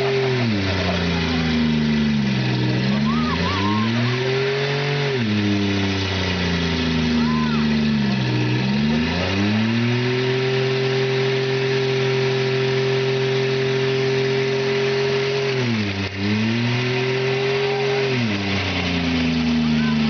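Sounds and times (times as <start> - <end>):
car engine revving hard: 0.0 - 20.0
spinning tyres hissing: 0.0 - 20.0.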